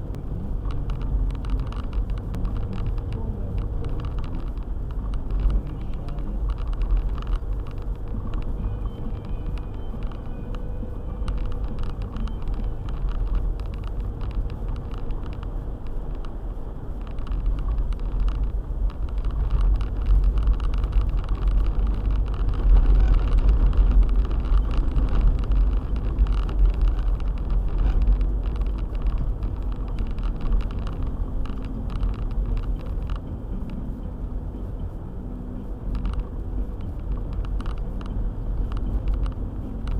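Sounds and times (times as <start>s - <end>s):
car engine and road noise: 0.0s - 39.9s
faint sharp ticks: 0.6s - 16.4s.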